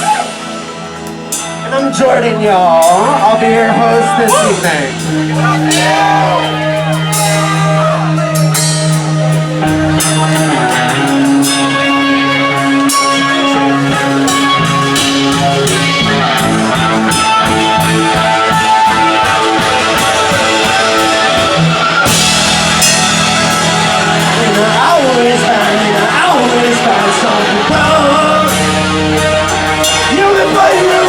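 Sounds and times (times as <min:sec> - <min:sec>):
live rock band playing: 0:00.0 - 0:31.0.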